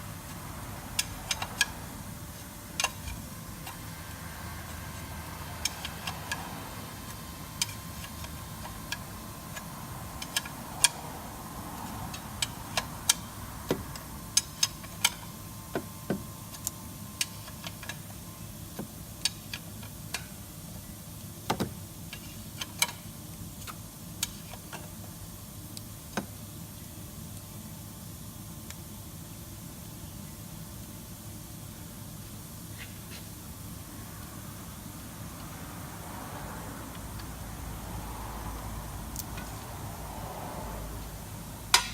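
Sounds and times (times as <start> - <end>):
metallic clicks of spanner: 5.6 - 6.5.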